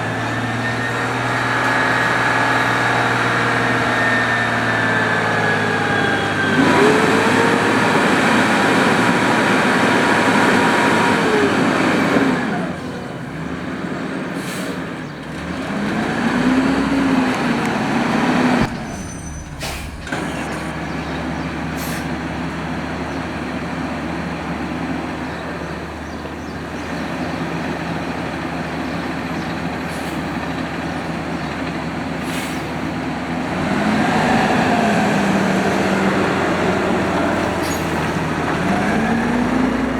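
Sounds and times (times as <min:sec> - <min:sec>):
garbage truck engine revving: 0:00.0 - 0:39.9
air brake hisses: 0:14.4 - 0:14.9, 0:18.7 - 0:20.8, 0:21.8 - 0:22.2, 0:32.2 - 0:32.9.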